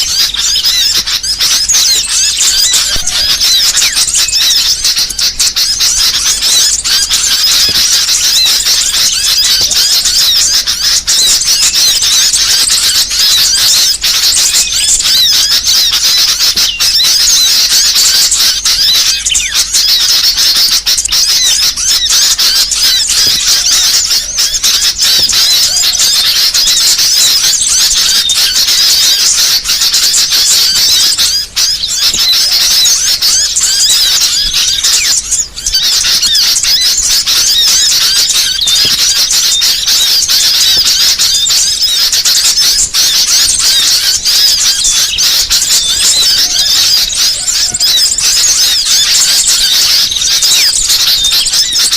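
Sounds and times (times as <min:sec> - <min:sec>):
small songbirds chirping: 0:00.0 - 0:51.9.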